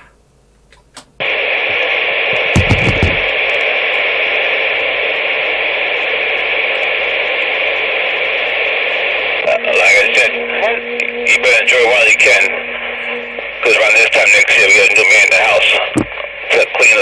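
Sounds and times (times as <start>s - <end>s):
radio static hiss: 0.8s - 17.0s
low thumps and clicks: 2.4s - 3.3s, 15.9s - 16.2s.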